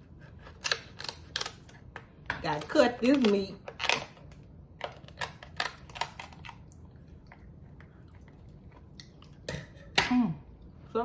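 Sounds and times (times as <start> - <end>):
chewing crab meat: 5.0 - 10.0.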